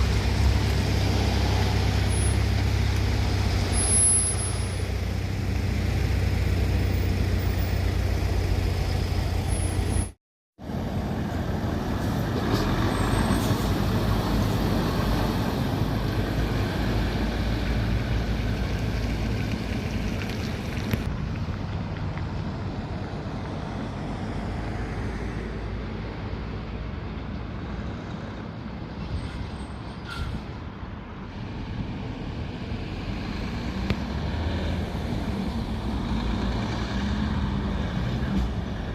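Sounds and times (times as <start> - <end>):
diesel trucks driving past: 0.0 - 38.9.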